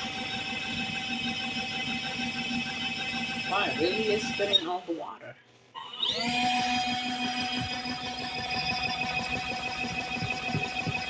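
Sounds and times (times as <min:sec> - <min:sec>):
spin dryer motor whine: 0:00.0 - 0:05.2, 0:05.8 - 0:11.0.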